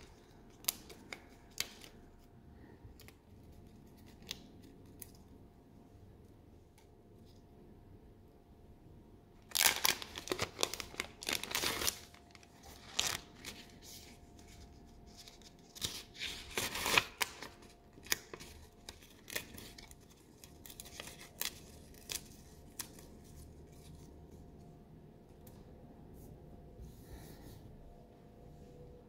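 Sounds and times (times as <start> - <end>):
packaging rustling and tearing: 9.4 - 24.1.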